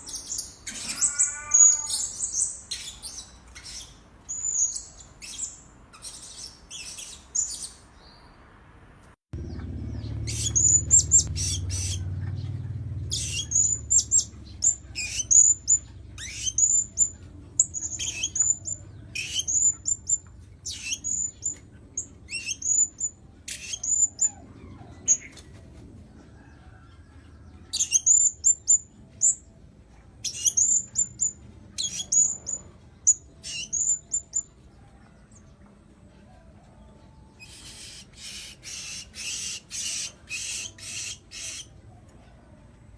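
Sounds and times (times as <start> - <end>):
parrot shrill calls: 0.2 - 3.0.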